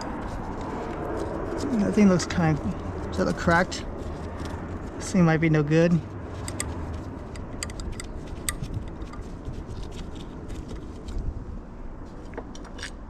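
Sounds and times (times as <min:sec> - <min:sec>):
low background rumble: 0:00.0 - 0:13.0
metal parts clicking and scraping: 0:06.4 - 0:10.9.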